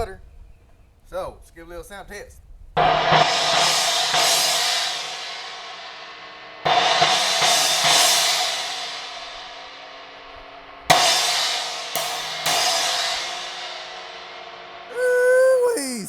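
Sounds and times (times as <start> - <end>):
china cymbal crashing and ringing: 2.8 - 15.0.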